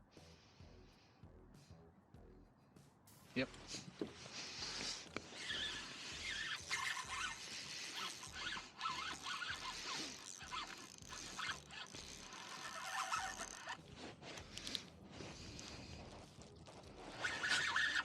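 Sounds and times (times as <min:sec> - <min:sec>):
fishing reel ratcheting and whirring: 0:04.3 - 0:18.0
short squeaks: 0:05.2 - 0:13.9, 0:16.6 - 0:18.0.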